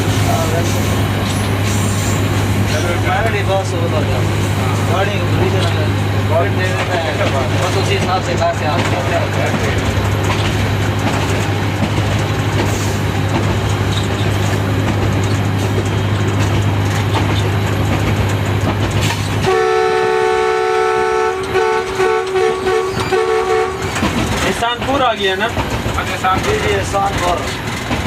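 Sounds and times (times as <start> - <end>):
locomotive engine drone: 0.0 - 28.0
multi-tone air horn: 19.4 - 23.9.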